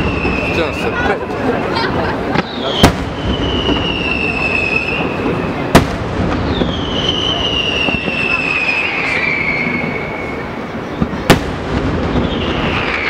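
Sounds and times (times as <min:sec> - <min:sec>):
firework whistles sliding down: 0:00.0 - 0:00.9, 0:02.4 - 0:05.7, 0:06.3 - 0:10.6, 0:12.0 - 0:13.0
firework bangs: 0:00.0 - 0:13.0.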